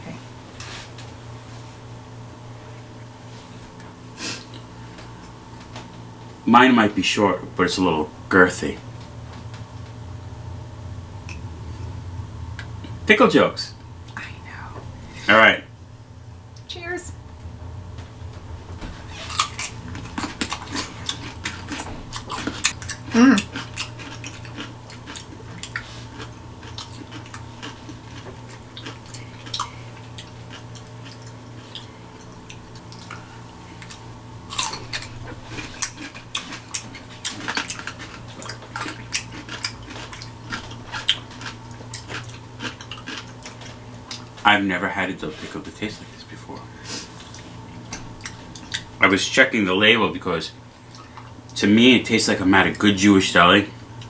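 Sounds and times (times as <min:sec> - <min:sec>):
crunching pickles: 0:19.1 - 0:44.7
person humming: 0:23.1 - 0:23.5.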